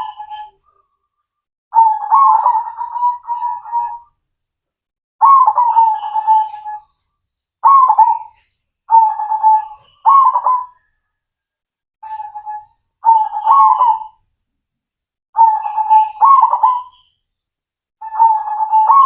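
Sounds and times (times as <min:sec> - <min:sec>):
dove cooing: 0:00.0 - 0:00.9, 0:01.8 - 0:04.1, 0:05.2 - 0:06.9, 0:07.6 - 0:10.8, 0:12.0 - 0:14.2, 0:15.4 - 0:17.0, 0:18.0 - 0:19.0.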